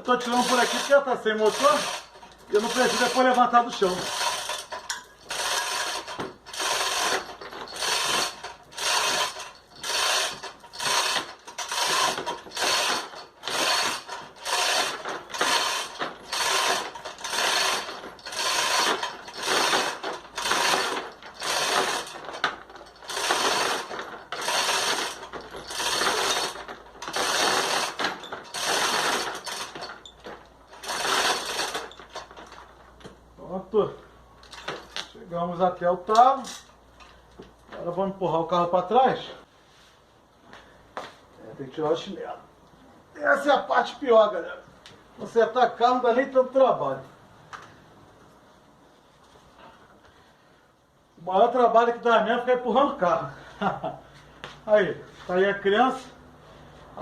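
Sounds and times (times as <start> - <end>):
ratchet clicking: 0.2 - 32.5.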